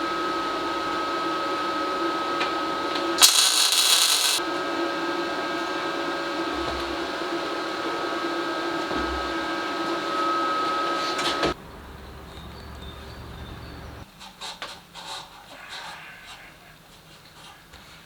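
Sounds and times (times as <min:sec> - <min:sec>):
electric motor whining: 0:03.2 - 0:04.4.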